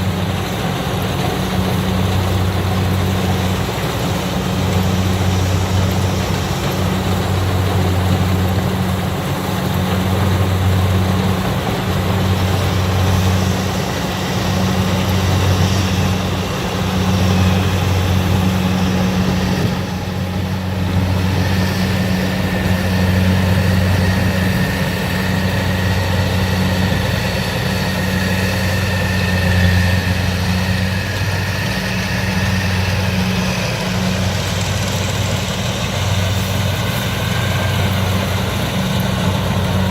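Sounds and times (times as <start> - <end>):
combine harvester engine hum: 0.0 - 39.9
steady high whine: 0.0 - 39.9.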